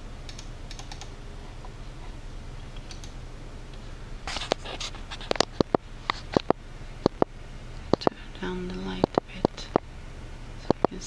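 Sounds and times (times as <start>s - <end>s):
steady low hum: 0.0s - 11.0s
computer mouse clicks: 0.3s - 1.1s, 2.8s - 3.2s, 10.6s - 11.0s.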